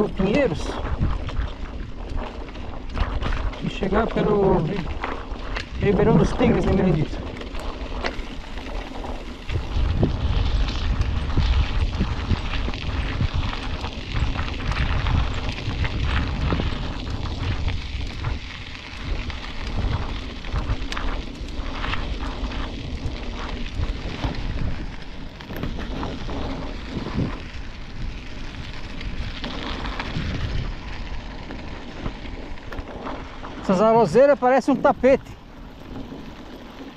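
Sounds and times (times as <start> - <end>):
wind buffeting microphone: 0.0 - 36.9
small knocks from bike: 7.3 - 9.8, 17.4 - 27.4, 28.8 - 33.3.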